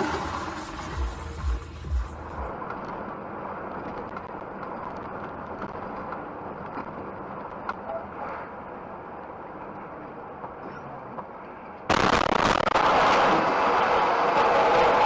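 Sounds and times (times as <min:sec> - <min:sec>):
vehicle engine and road noise: 0:00.0 - 0:15.0
heavy low thumps: 0:01.0 - 0:02.5.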